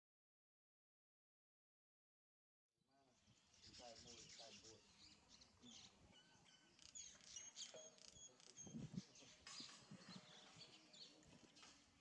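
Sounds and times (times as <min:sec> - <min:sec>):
small birds chirping: 0:03.0 - 0:12.0.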